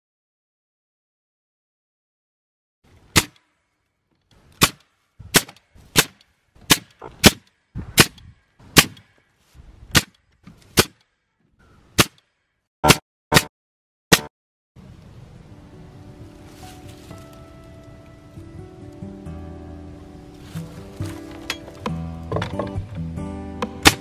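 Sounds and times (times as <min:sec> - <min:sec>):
nail gun firing into wood: 0:04.6 - 0:08.2, 0:08.8 - 0:09.1, 0:09.9 - 0:11.1, 0:23.7 - 0:24.0.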